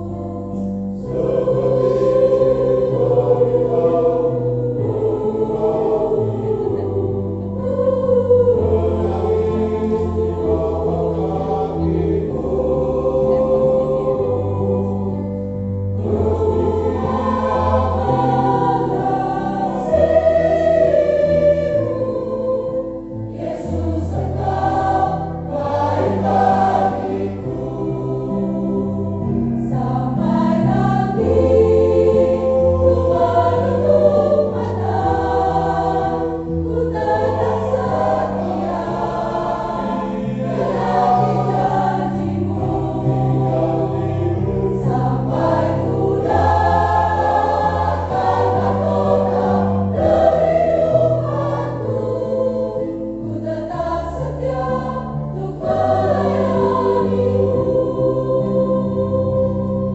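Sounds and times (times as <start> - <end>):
choir singing a hymn in harmony: 0.0 - 59.9.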